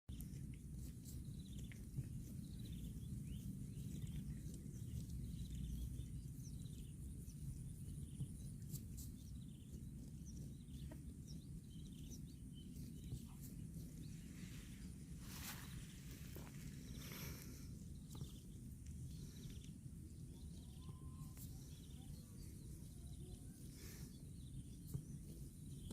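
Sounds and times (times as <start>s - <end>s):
low rumble: 0.1s - 25.9s
rustling: 12.6s - 19.9s.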